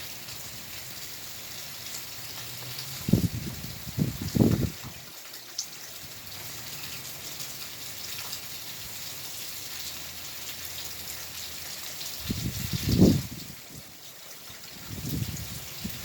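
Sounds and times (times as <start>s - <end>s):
steady rain hiss: 0.0s - 16.0s
faint raindrop ticks: 1.8s - 3.2s, 4.4s - 12.8s.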